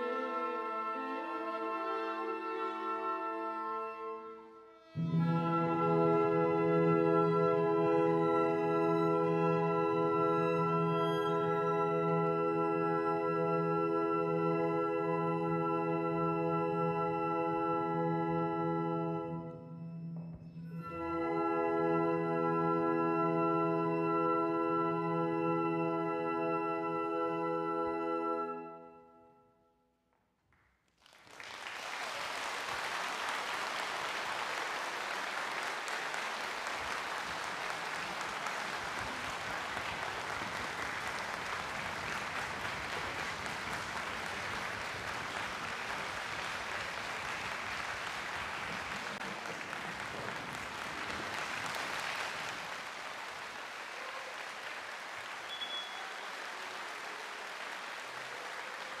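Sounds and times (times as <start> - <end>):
audience applause: 5.2 - 11.8, 31.0 - 59.0.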